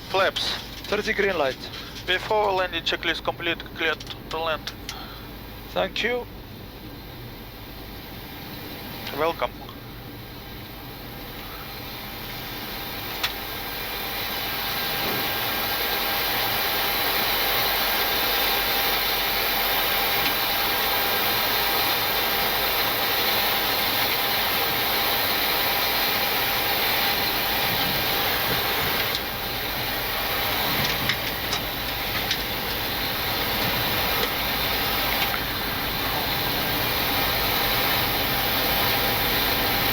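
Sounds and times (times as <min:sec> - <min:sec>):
rushing air and engines: 0:00.0 - 0:39.9
small clicks: 0:03.9 - 0:05.0.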